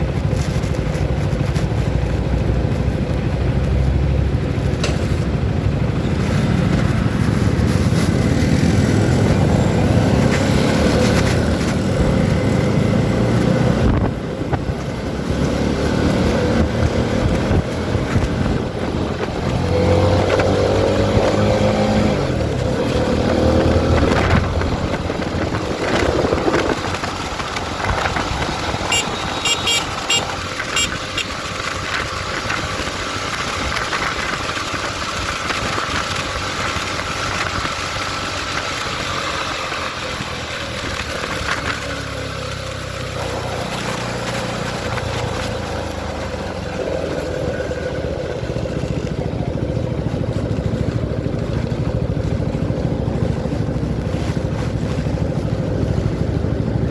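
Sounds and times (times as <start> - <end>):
wind noise: 0.0 - 38.6
motorcycle engine accelerating: 0.0 - 56.9.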